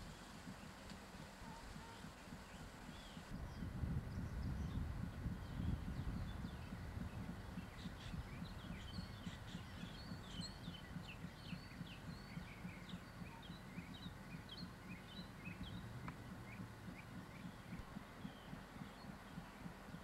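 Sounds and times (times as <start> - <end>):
faint low throb: 0.0 - 20.0
songbirds chirping: 0.0 - 20.0.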